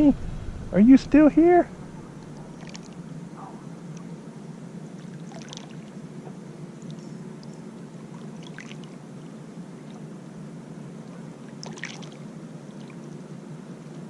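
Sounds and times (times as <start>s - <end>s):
water splashes: 1.7s - 3.1s, 4.9s - 6.0s, 6.8s - 9.0s, 11.0s - 13.2s
water lapping around a kayak: 1.7s - 4.2s, 4.8s - 14.0s.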